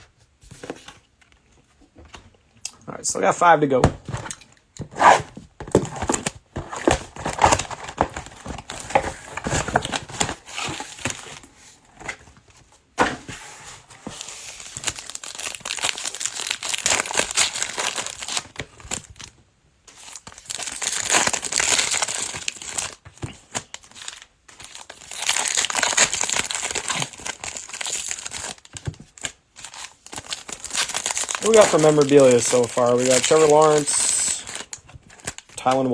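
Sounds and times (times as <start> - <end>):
plastic wrapping torn and crinkled: 4.3 - 11.4, 14.4 - 35.9.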